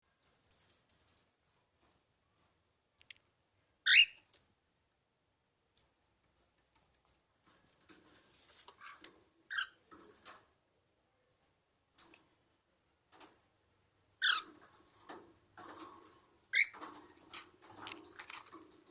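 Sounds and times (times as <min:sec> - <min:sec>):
soft clicks: 0:03.0 - 0:03.3
cockatiel chirp: 0:03.9 - 0:04.2
rustling and scratching: 0:06.3 - 0:10.6, 0:14.2 - 0:18.9.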